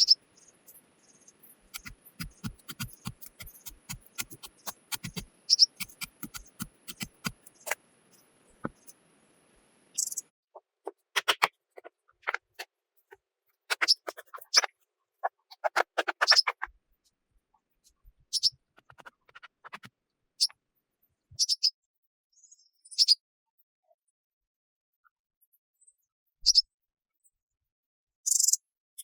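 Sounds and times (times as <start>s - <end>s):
objects being handled: 1.7s - 8.9s, 13.7s - 14.7s.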